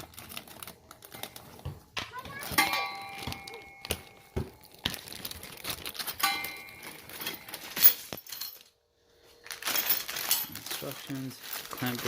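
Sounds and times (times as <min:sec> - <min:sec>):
metal hardware clinking and rattling: 0:02.3 - 0:04.2, 0:05.5 - 0:08.8, 0:09.6 - 0:12.0
sharp metal clink: 0:06.2 - 0:08.6.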